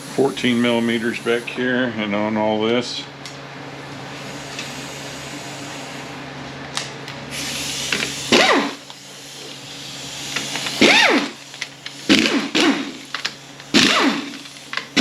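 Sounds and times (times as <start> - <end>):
steady low hum: 0.0 - 15.0
power wrench spinning: 7.3 - 15.0.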